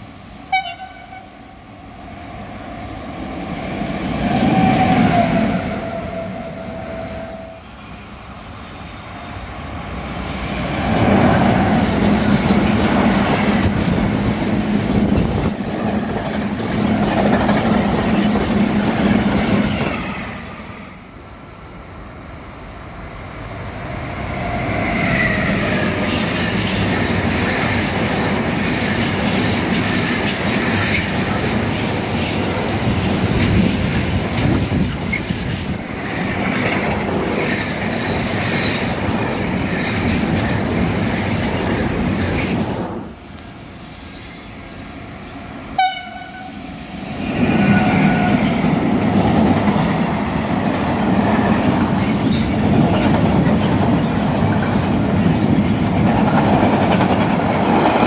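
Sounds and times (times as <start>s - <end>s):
train horn blast: 0.5s - 1.4s, 4.5s - 7.8s, 45.8s - 46.7s
freight train wagons clattering: 11.6s - 19.9s, 25.7s - 43.1s, 48.0s - 58.0s.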